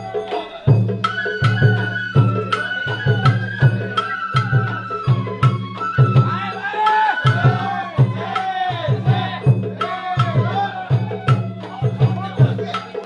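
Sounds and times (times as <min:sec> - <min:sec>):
sliding wavering melody: 0:00.0 - 0:07.9.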